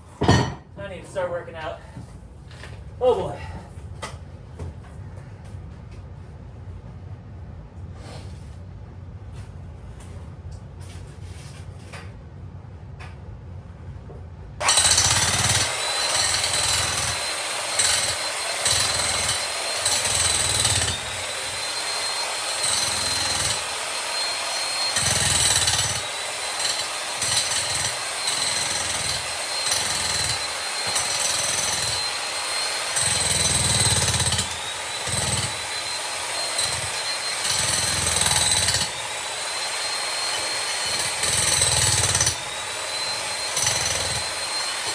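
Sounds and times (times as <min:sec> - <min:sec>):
jackhammer breaking concrete: 0:14.6 - 0:44.9.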